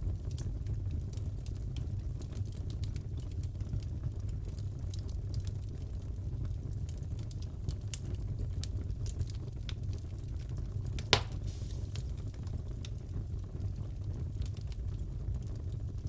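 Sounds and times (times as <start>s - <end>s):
wood fire crackling: 0.0s - 16.0s
sharp wood crack: 11.0s - 11.9s.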